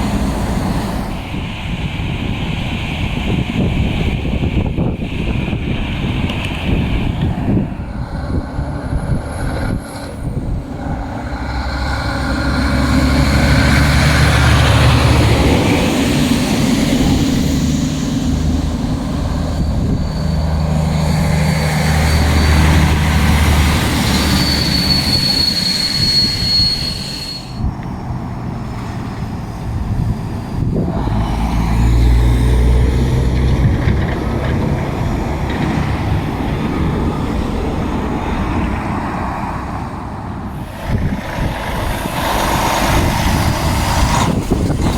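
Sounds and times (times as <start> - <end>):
diesel truck passing: 0.0 - 44.9
thin high squeal: 19.0 - 27.7.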